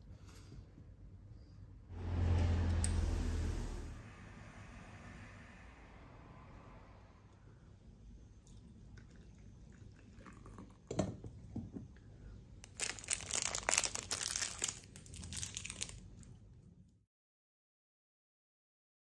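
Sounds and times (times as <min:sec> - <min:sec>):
plastic wrapper tearing and crinkling: 0:12.6 - 0:16.3.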